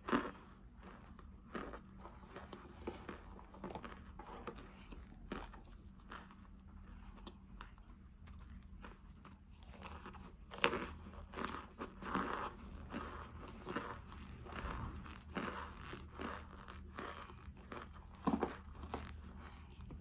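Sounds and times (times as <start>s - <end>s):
crunchy food being chewed: 0.0s - 20.0s.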